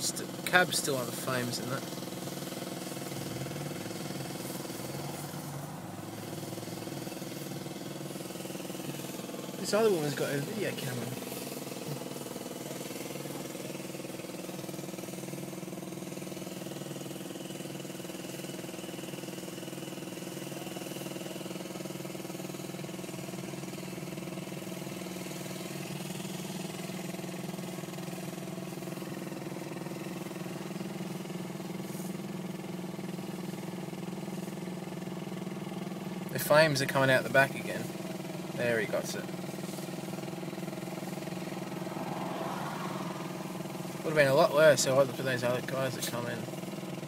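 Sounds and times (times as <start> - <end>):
engine idling: 0.0 - 47.0.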